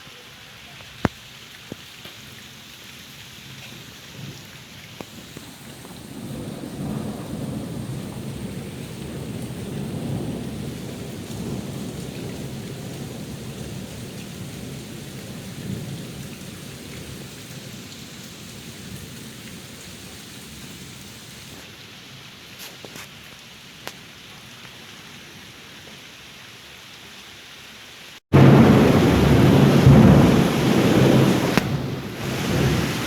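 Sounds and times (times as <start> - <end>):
steady rain: 0.0 - 33.0
thunder rolling: 5.1 - 17.7, 28.3 - 33.0.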